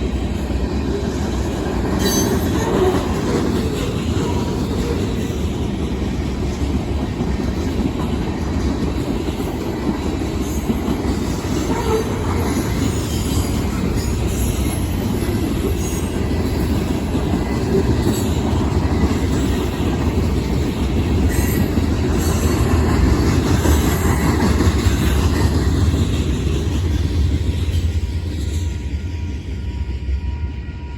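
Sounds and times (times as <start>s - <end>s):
freight train rumbling and clattering: 0.0s - 30.9s.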